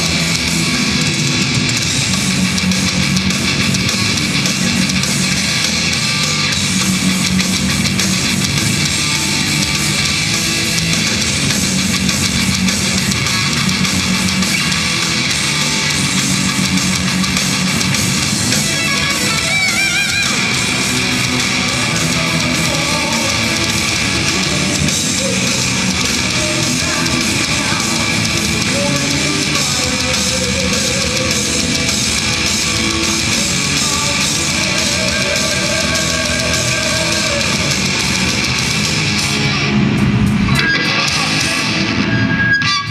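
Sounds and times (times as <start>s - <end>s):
heavy metal band playing: 0.0s - 42.9s
wavering high guitar note: 18.5s - 21.5s.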